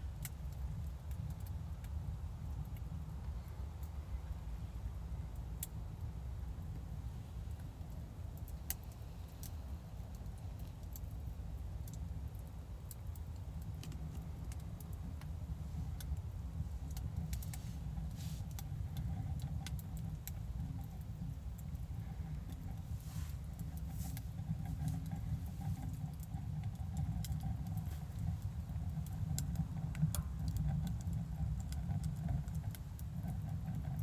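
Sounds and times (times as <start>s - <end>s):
steady low rumble: 0.0s - 34.0s
light clicks and taps: 7.5s - 34.0s.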